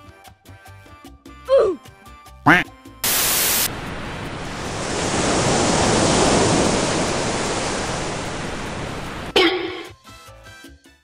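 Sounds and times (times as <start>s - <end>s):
loud rushing noise: 3.0s - 9.3s.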